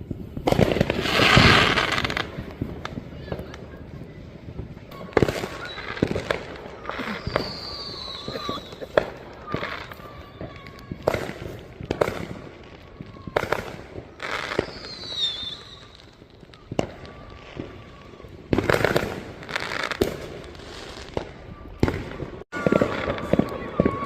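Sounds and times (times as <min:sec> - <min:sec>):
fireworks bangs and crackles: 0:00.0 - 0:24.0
falling firework whistle: 0:04.8 - 0:24.0.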